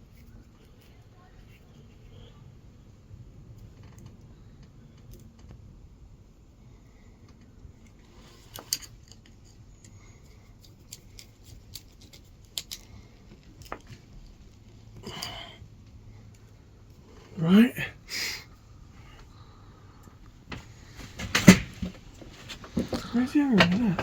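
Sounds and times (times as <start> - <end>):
rustling scrape: 20.6 - 24.0.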